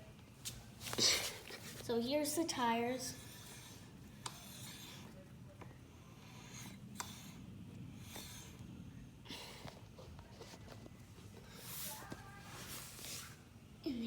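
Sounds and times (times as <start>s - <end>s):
rustling and handling noise: 9.6s - 13.5s.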